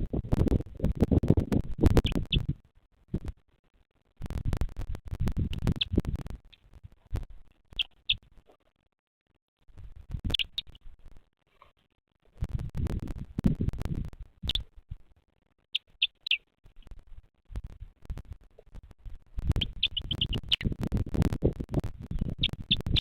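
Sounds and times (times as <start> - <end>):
scratching and rustling in nest: 15.9 - 23.0.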